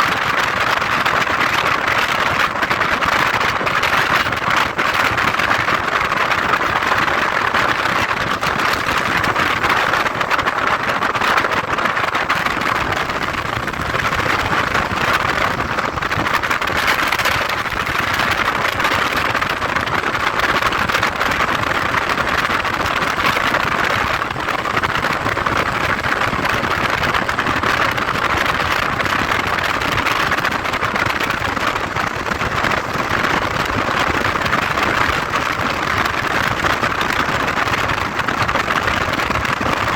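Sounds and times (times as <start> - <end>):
wind and road noise: 0.0 - 39.9
motorcycle engine: 0.8 - 36.2.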